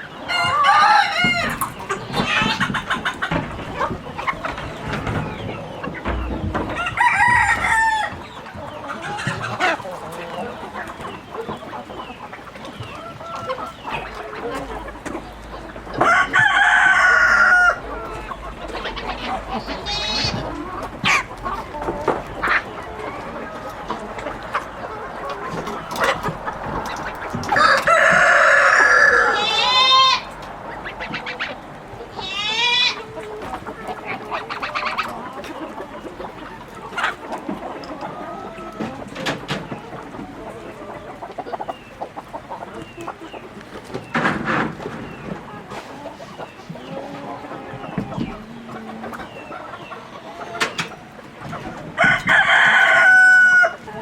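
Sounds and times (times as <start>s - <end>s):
chickens clucking: 0.0s - 54.0s
rooster crowing: 6.6s - 8.2s, 16.0s - 17.9s, 27.3s - 30.3s, 52.0s - 53.8s
chicken drawn-out rising call: 24.7s - 33.4s.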